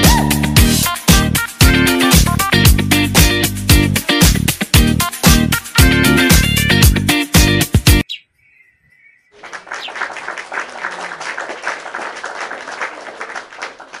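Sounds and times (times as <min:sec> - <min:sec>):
music with a beat: 0:00.0 - 0:08.0
many birds chattering: 0:08.0 - 0:11.0.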